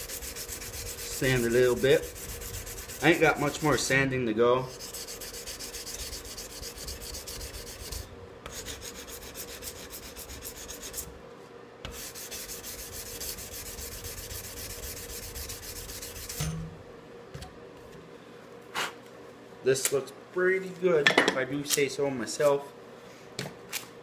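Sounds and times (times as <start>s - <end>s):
sandpaper rubbing on knife blade: 0.0s - 3.9s, 4.7s - 11.1s, 11.9s - 16.5s.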